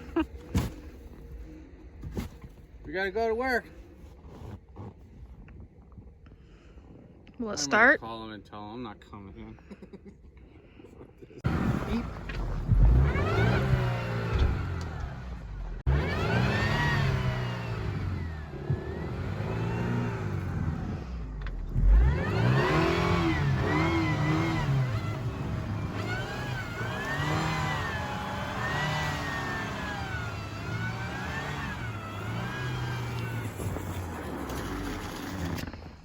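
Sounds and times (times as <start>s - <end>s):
car engine revving: 11.4s - 35.8s.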